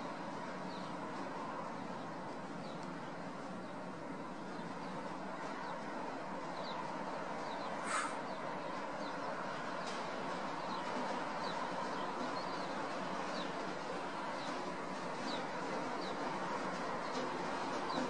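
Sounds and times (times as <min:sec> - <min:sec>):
small birds chirping: 0:00.1 - 0:18.0
brief loud rasp: 0:07.8 - 0:08.2.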